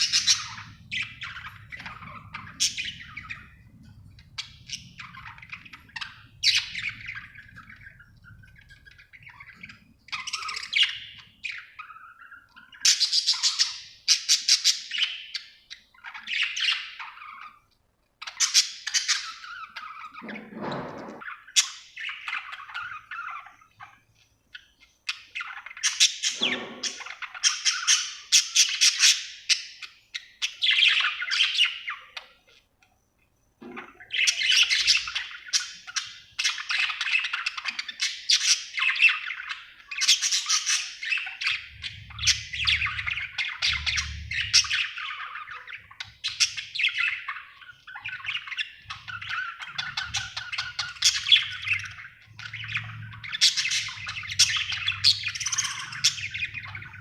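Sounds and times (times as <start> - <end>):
budgerigar chirping: 33.9 - 57.0.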